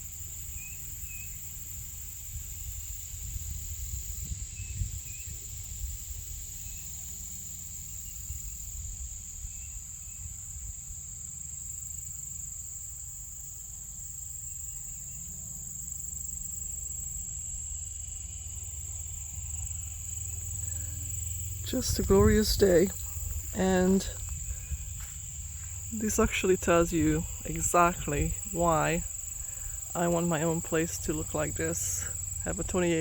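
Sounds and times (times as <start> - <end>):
high-pitched insect chorus: 0.0 - 33.0
low rumble: 20.3 - 32.7.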